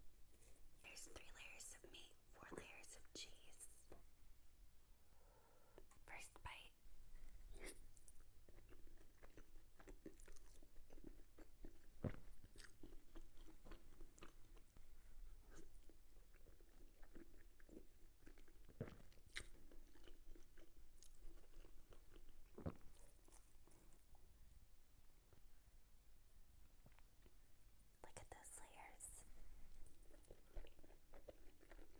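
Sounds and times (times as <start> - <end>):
chewing food: 7.2 - 24.6, 26.6 - 27.5, 29.6 - 31.9.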